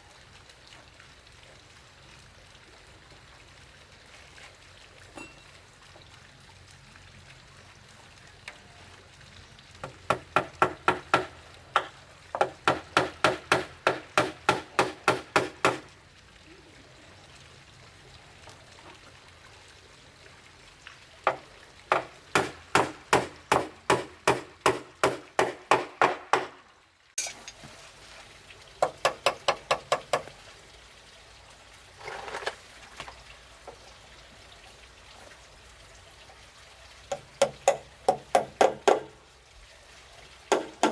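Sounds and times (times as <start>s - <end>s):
hand tool striking wood: 9.8s - 15.8s, 21.3s - 26.6s, 37.1s - 39.1s, 40.5s - 40.9s.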